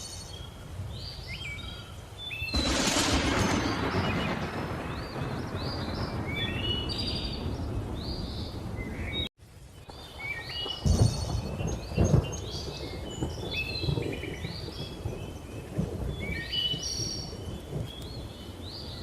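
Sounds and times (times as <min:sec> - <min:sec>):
rain: 0:00.0 - 0:19.0
loud thunder rolls: 0:02.5 - 0:09.3, 0:10.7 - 0:18.3
low rumble of thunder: 0:02.5 - 0:19.0.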